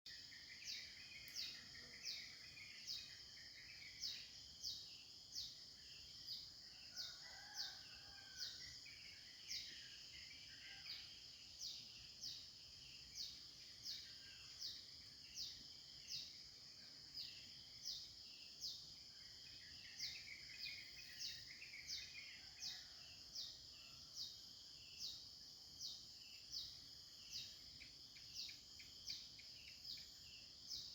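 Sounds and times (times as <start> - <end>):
faint high insect hum: 0.1 - 30.9
birds chirping and warbling: 0.2 - 5.6.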